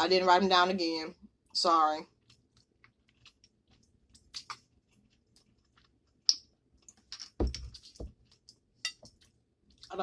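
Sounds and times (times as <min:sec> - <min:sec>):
chewing clicks and wet smacks: 0:01.4 - 0:07.1.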